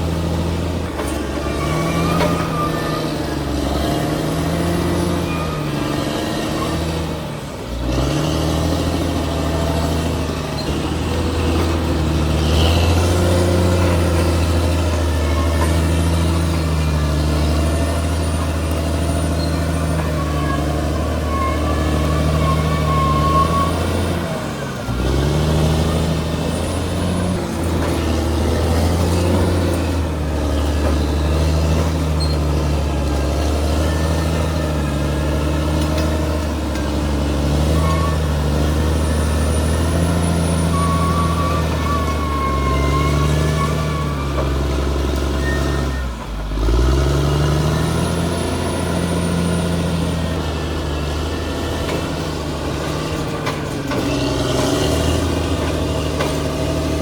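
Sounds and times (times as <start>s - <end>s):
bulldozer diesel engine working: 0.0s - 57.0s
running gear squealing: 0.9s - 7.0s, 10.4s - 46.2s.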